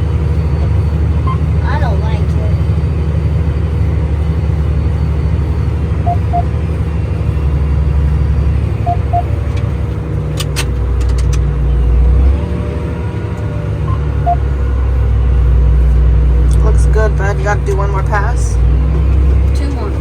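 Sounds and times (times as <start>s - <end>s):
tractor engine rumble: 0.0s - 20.0s
high electronic pips: 6.0s - 6.6s, 8.8s - 9.3s.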